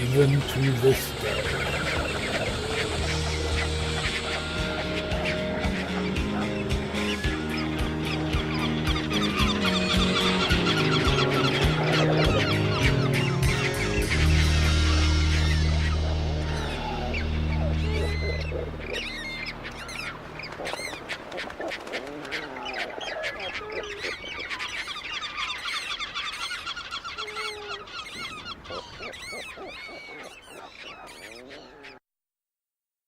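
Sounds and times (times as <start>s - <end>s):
closing music: 0.0s - 20.5s
flock of birds calling: 0.0s - 32.0s.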